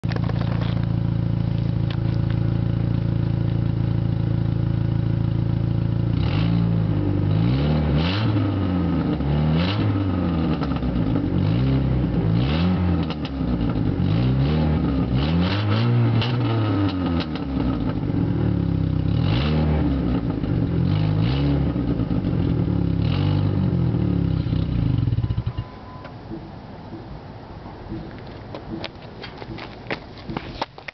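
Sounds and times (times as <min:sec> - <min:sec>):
crackly exhaust: 0:00.0 - 0:30.9
car engine revving: 0:06.0 - 0:25.7.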